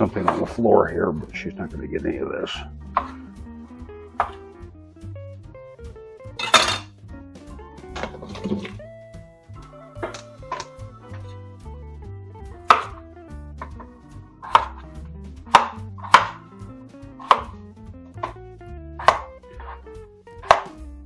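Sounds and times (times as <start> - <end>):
soft background music: 0.0 - 21.0
knife chopping on cutting board: 2.9 - 3.3, 4.1 - 4.5, 12.6 - 13.0, 13.6 - 18.4, 19.0 - 20.9.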